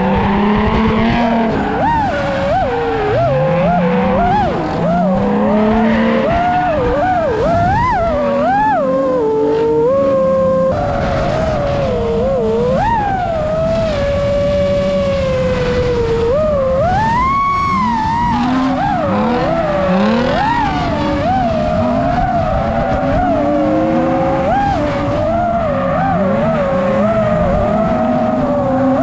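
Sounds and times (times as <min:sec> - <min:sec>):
motors whining: 0:00.0 - 0:29.0.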